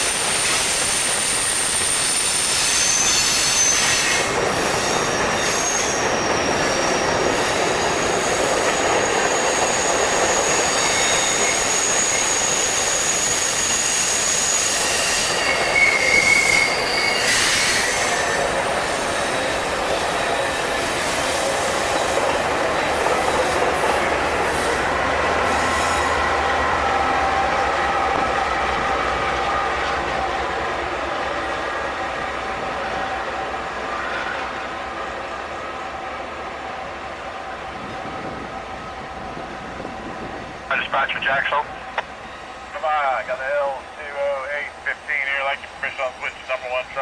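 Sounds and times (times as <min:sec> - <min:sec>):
wheel flange squeals: 0:00.0 - 0:22.2, 0:22.8 - 0:26.3
freight train rumbling past: 0:00.0 - 0:47.0.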